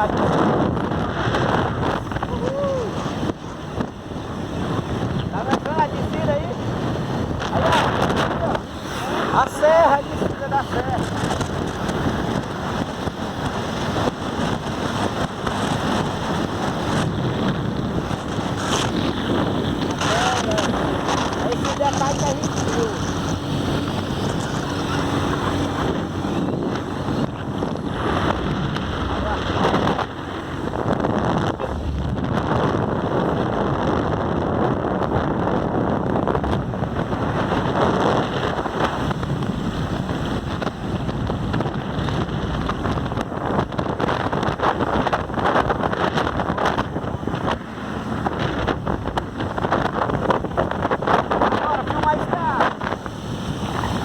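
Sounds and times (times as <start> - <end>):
road noise: 0.0 - 54.0
wind rushing over microphone: 0.0 - 54.0
motorcycle engine: 11.0 - 33.4.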